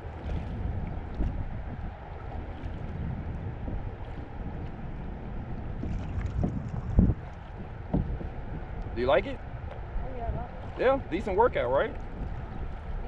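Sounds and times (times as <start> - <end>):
paddle splashes: 0.0 - 5.1, 5.7 - 8.6
wind rumble on microphone: 0.0 - 13.0.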